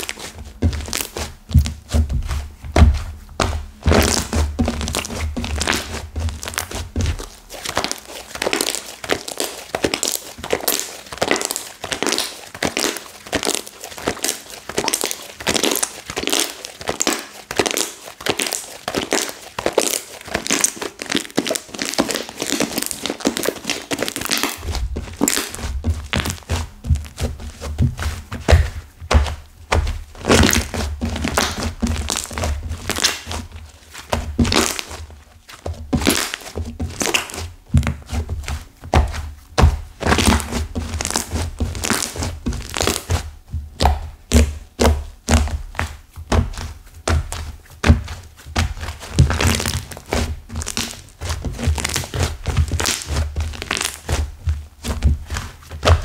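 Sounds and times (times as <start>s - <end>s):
slime crackling when squeezed: 7.6s - 26.5s, 30.2s - 33.3s.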